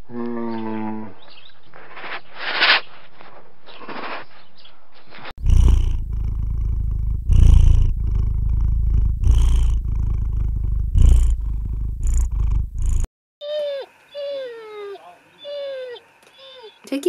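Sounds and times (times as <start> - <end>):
kitten purring: 5.4 - 16.7
dog whining: 13.4 - 16.9.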